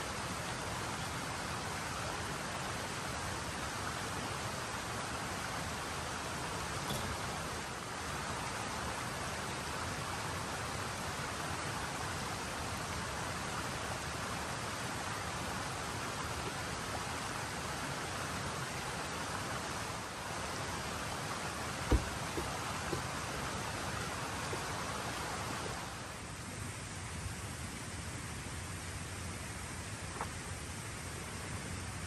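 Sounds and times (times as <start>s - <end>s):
rushing water: 0.0s - 26.4s
sharp knock: 21.9s - 22.6s.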